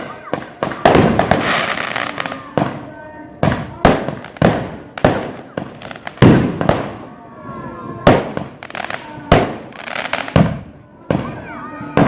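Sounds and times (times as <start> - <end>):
fireworks bangs echoing: 0.0 - 12.0.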